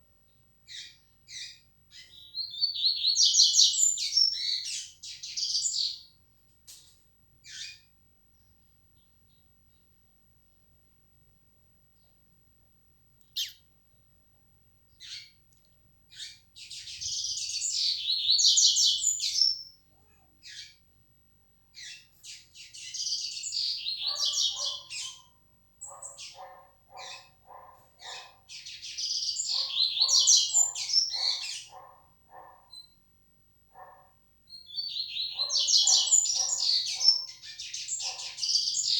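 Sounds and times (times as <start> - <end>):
bird warbling song: 0.3 - 6.1, 7.4 - 10.0, 13.2 - 13.7, 14.9 - 15.5, 16.1 - 20.8, 21.7 - 33.0, 33.8 - 38.9.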